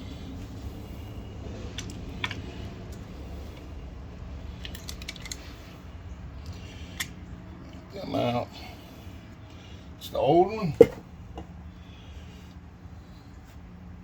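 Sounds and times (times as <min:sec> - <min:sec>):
low steady hum: 0:00.0 - 0:14.0
clicks of plastic parts handled: 0:01.7 - 0:03.0, 0:04.6 - 0:05.5.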